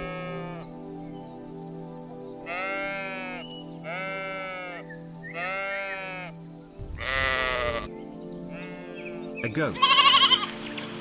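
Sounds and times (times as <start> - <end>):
sheep bleating: 0.0 - 0.7, 2.4 - 6.3, 7.0 - 7.9, 8.5 - 10.6
background music: 0.0 - 11.0.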